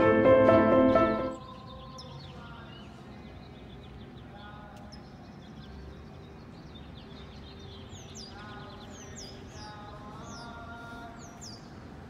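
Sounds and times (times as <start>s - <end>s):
birds chirping: 0.0s - 12.0s
low outdoor background noise: 0.0s - 12.0s.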